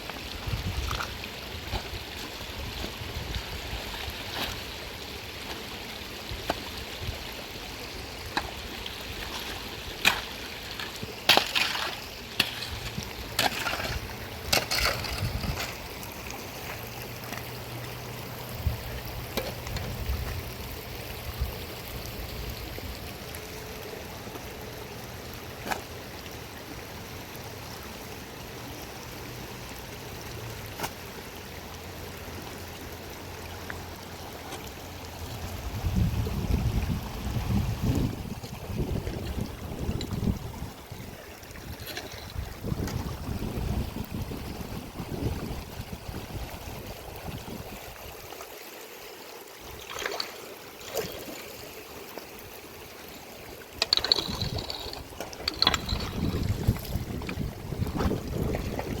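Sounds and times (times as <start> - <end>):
stream water rushing: 0.0 - 59.0
sharp knocks and scrapes: 9.4 - 15.8, 53.8 - 58.2.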